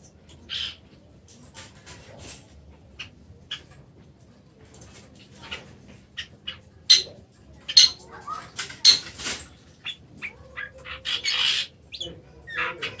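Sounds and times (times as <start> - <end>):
bird harsh rasp: 7.8 - 8.0, 8.8 - 9.2
bird sharp call notes: 7.8 - 8.0.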